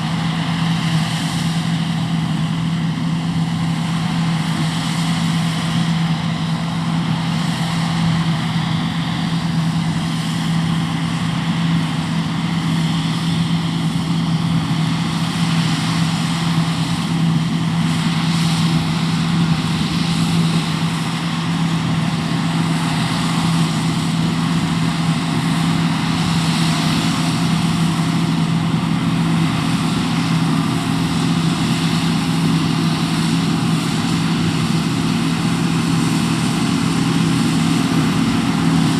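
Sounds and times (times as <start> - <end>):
combine harvester engine hum: 0.0 - 38.9.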